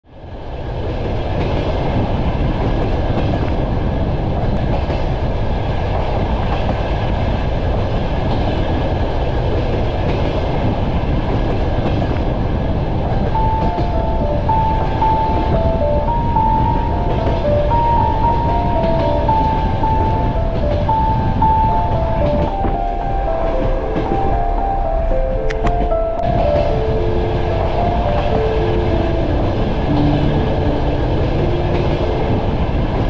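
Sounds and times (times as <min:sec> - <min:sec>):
train carriages rumbling on rails: 0:00.2 - 0:33.0
simple melody: 0:12.9 - 0:33.0.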